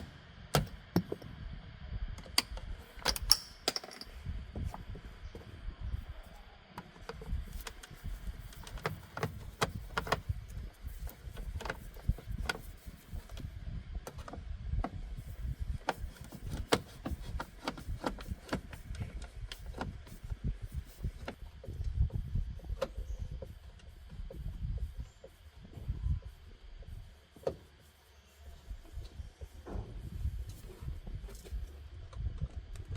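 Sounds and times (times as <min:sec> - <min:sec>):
steady low rumble: 0:00.0 - 0:32.9
irregular clicks and knocks: 0:02.2 - 0:04.2.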